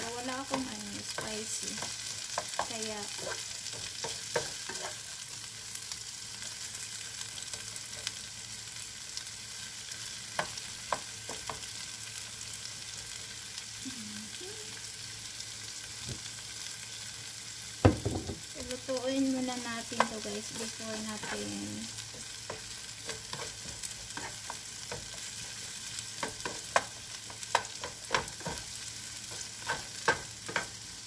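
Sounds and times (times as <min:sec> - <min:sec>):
shrimp and vegetables sizzling in pan: 0:00.0 - 0:31.0
knock: 0:17.8 - 0:18.4.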